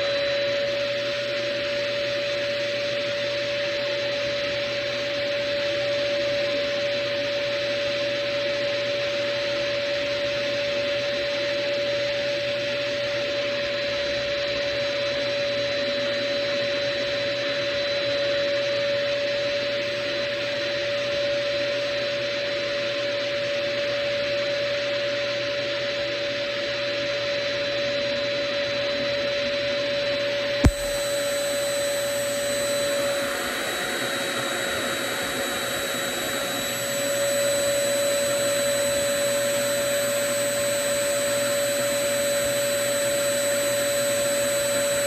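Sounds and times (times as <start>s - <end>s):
hair dryer suction motor whining: 30.6s - 45.0s.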